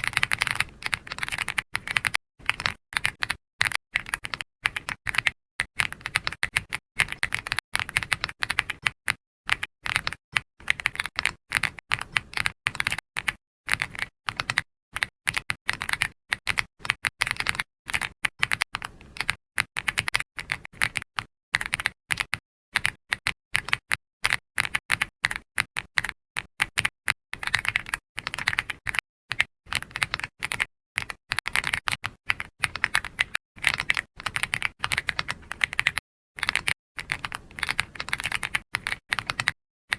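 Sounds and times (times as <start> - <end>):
keyboard typing: 0.0 - 39.6.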